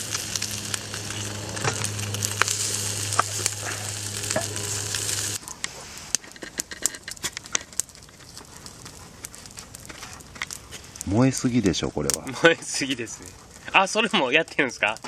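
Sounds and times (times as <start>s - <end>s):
steady low hum: 0.0s - 5.4s
food sizzling in a pan: 0.0s - 6.2s
sharp crackles and clicks: 0.0s - 15.0s.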